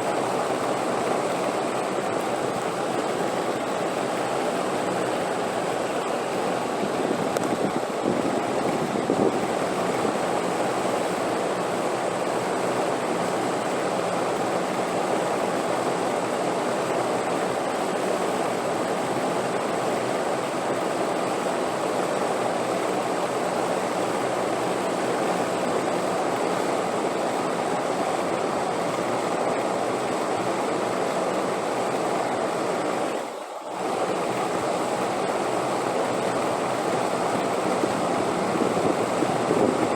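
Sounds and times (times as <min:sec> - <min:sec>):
rushing wind: 0:01.6 - 0:13.7, 0:35.8 - 0:39.9.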